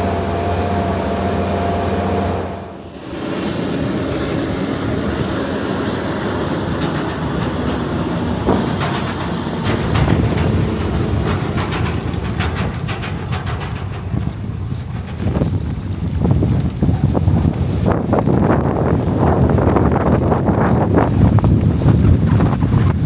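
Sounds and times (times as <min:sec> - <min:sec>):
heavy farm machinery rumbling: 0:00.0 - 0:23.0
rattling and clattering knocks: 0:03.0 - 0:19.0.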